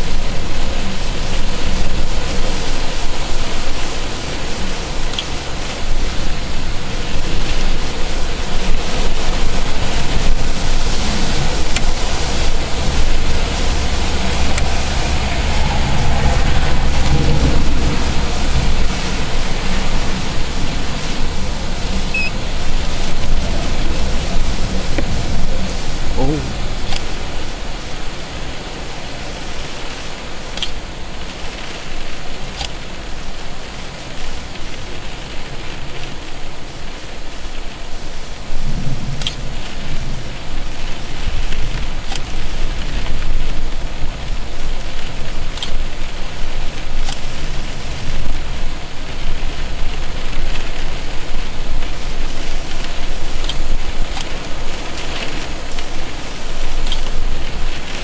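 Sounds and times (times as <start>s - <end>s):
raindrops ticking close by: 0.0s - 58.0s
steady rain: 0.0s - 58.0s
low rumble: 3.0s - 30.3s.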